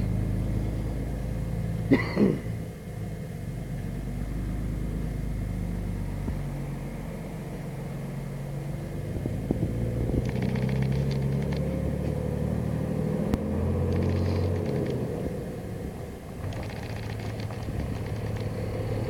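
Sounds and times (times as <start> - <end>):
tractor diesel engine running: 0.0 - 19.0
rapid rattling: 9.6 - 11.8, 13.8 - 15.1, 16.3 - 19.0.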